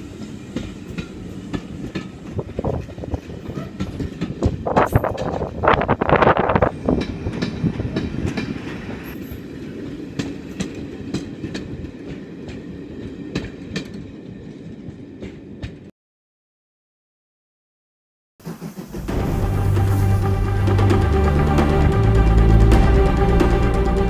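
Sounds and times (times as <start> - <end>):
train rumble: 0.0 - 15.9, 18.4 - 24.0
train wheels clicking over rail joints: 0.0 - 15.9.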